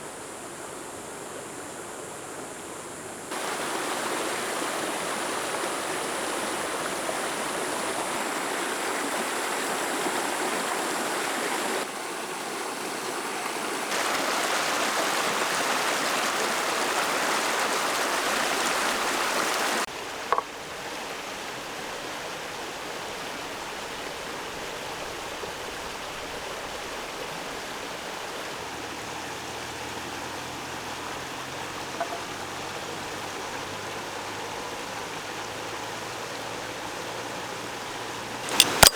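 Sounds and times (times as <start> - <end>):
water rushing: 0.0 - 38.9
sharp click: 38.4 - 38.9.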